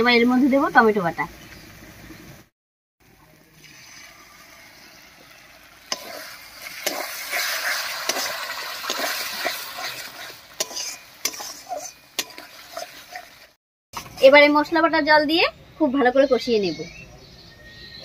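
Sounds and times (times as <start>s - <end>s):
paste sizzling in hot oil: 3.0s - 13.6s
metal spatula scraping a pan: 3.7s - 13.6s.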